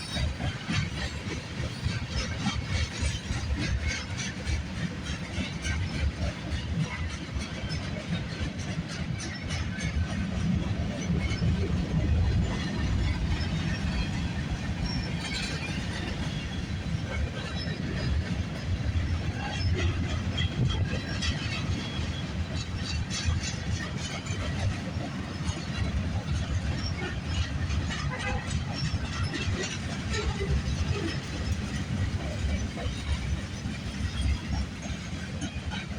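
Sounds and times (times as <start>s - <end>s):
freight train rolling past: 0.0s - 35.9s
wheels clicking on rails: 0.0s - 35.9s.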